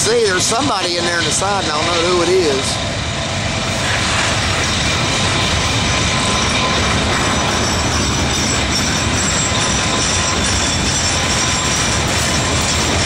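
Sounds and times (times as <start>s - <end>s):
train wheels rumbling on rail: 0.0s - 13.0s
high wheel squeal: 3.5s - 13.0s.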